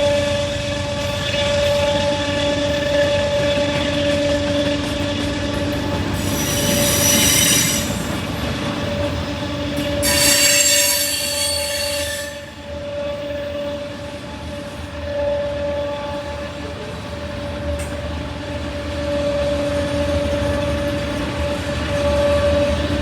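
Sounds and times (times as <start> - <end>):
freight train whine: 0.0 - 23.0
high-pitched wheel squeal: 6.2 - 8.2, 10.0 - 13.8.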